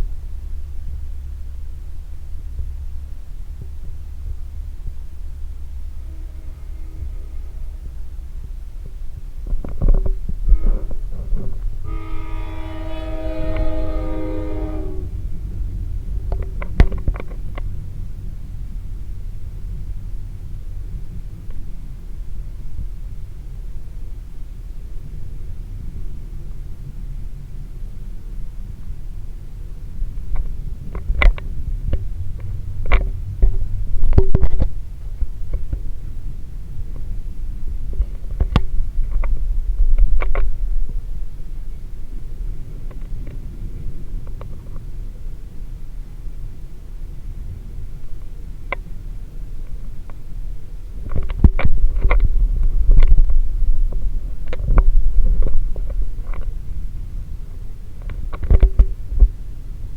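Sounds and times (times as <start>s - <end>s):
freight cars rumbling past: 0.0s - 23.8s
freight train rumbling: 0.0s - 59.9s.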